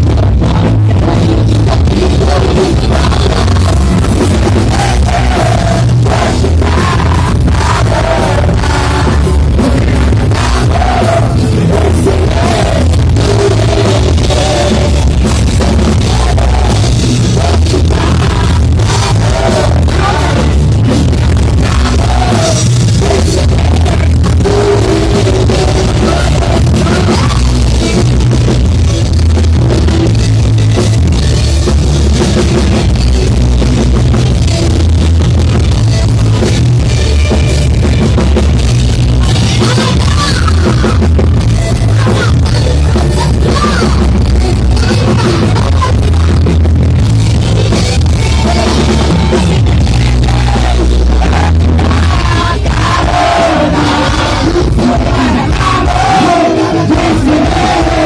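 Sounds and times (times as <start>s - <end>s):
person singing: 0.0s - 28.1s, 39.0s - 46.7s, 47.6s - 58.0s
live rock band playing: 0.0s - 58.0s.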